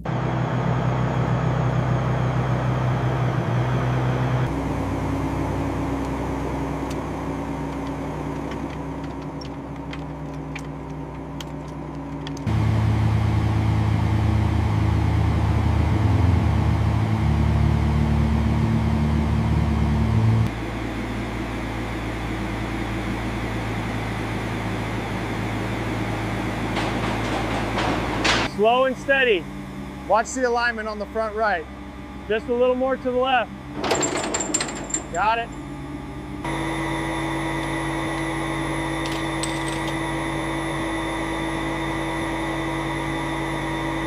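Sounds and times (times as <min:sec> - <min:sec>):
deep drone: 0:00.0 - 0:44.0
low mechanical hum: 0:00.0 - 0:44.0.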